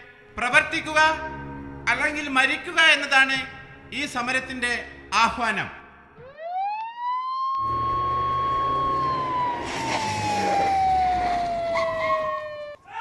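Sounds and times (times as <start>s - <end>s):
siren wailing: 6.2s - 12.9s.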